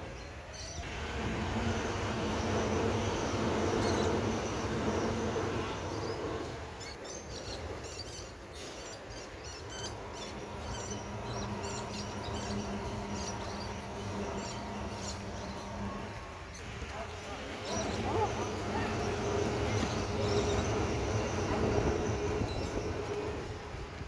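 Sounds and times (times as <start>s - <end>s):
birds chirping: 0.0s - 23.6s
faint steady hum: 0.0s - 24.0s
low rumble: 9.6s - 23.7s.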